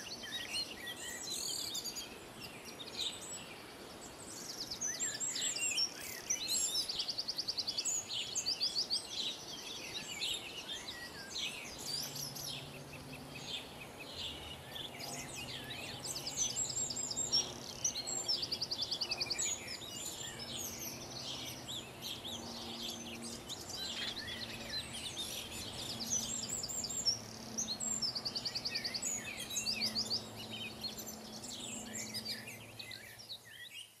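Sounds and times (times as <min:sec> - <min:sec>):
songbirds singing and chirping: 0:00.0 - 0:34.0.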